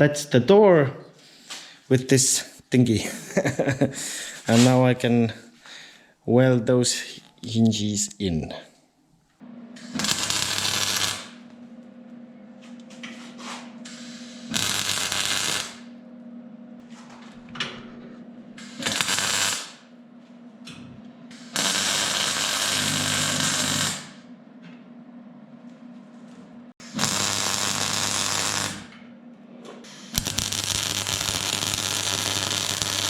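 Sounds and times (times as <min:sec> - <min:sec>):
welder humming: 0:09.4 - 0:19.9, 0:20.5 - 0:24.3, 0:26.8 - 0:29.1, 0:29.8 - 0:33.0
arc welder crackling: 0:09.8 - 0:11.8, 0:13.8 - 0:15.9, 0:18.6 - 0:19.9, 0:21.3 - 0:24.3, 0:26.8 - 0:29.1, 0:29.8 - 0:33.0.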